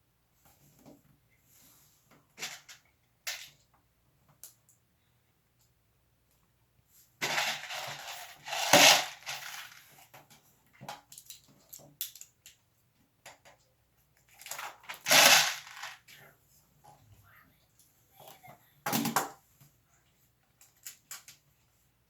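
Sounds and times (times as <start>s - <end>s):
plastic pieces rattling: 7.2s - 10.0s, 14.4s - 16.0s
small plastic clicks: 11.0s - 12.6s.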